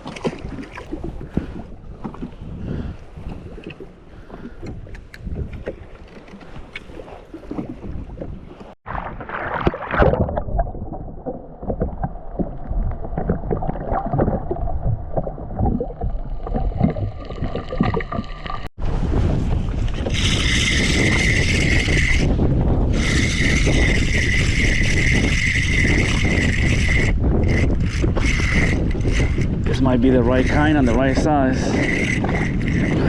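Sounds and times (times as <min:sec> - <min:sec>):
wind and water noise on microphone: 0:00.0 - 0:33.0.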